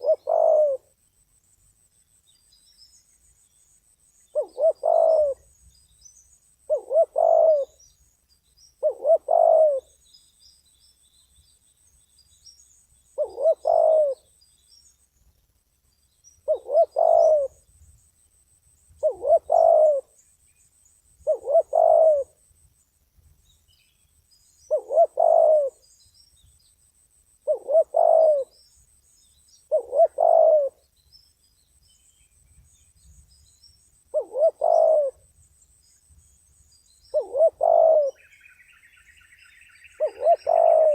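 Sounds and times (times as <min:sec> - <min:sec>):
dove cooing: 0:00.0 - 0:00.9, 0:04.3 - 0:05.5, 0:06.7 - 0:07.8, 0:08.8 - 0:10.0, 0:13.2 - 0:14.3, 0:16.4 - 0:17.6, 0:19.0 - 0:20.2, 0:21.2 - 0:22.4, 0:24.7 - 0:25.8, 0:27.4 - 0:28.6, 0:29.7 - 0:30.8, 0:34.1 - 0:35.3, 0:37.1 - 0:38.3, 0:39.9 - 0:40.9.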